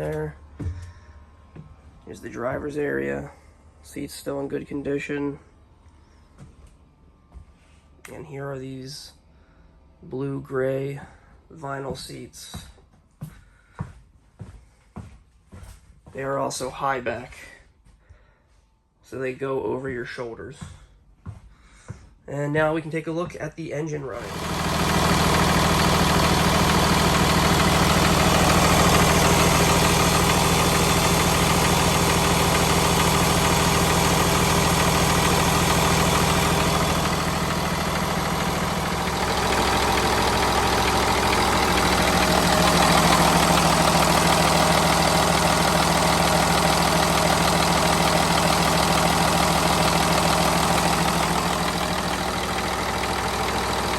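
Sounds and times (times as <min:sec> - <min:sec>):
bus engine idling: 0:24.1 - 0:53.9.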